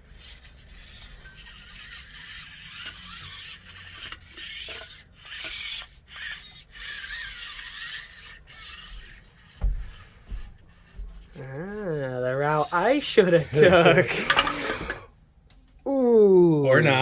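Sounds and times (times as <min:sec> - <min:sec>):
small electric motor whining: 0:00.0 - 0:15.2
thump: 0:09.6 - 0:11.2
tyres scraping over course: 0:12.4 - 0:15.1.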